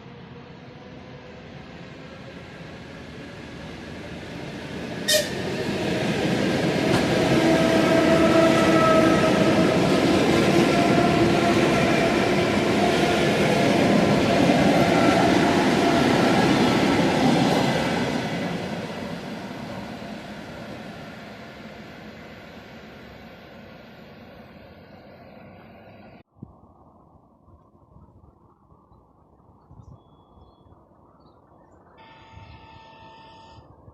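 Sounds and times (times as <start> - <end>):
train passing at speed: 0.0 - 26.3.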